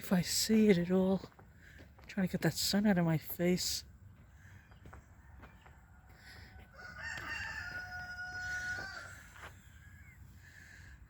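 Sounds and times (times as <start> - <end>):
rooster crowing: 4.6 - 10.0.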